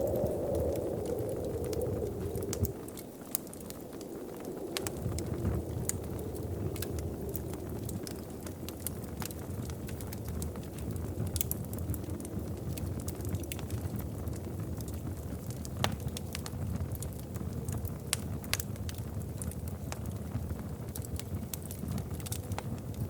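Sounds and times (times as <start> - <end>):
low rumble of flames: 0.0 - 23.0
wood fire crackling: 0.0 - 23.0
sharp pops of fire: 14.8 - 22.9.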